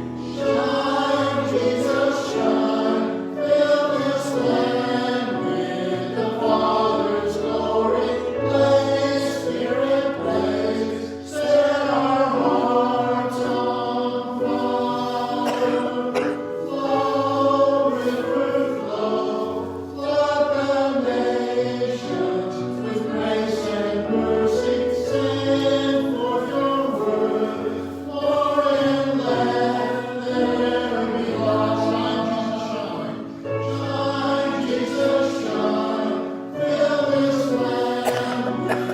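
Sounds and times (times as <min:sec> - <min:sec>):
choir singing a hymn: 0:00.0 - 0:38.9.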